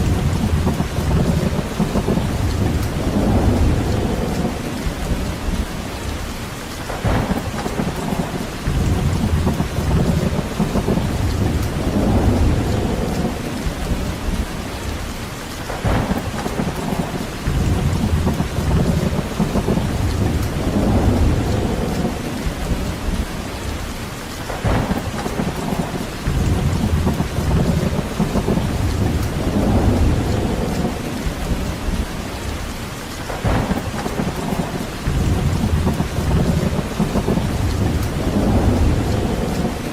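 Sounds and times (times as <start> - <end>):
deep low rumbling: 0.0 - 6.0, 26.3 - 32.0
heavy rain: 0.0 - 39.9.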